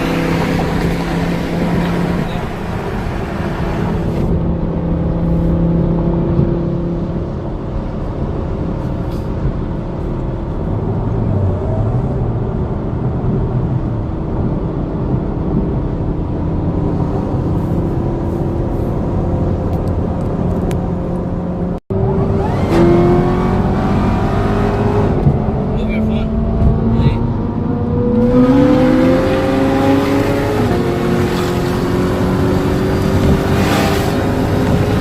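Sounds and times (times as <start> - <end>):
road noise: 0.0 - 35.0
sports car engine cruising: 0.0 - 35.0.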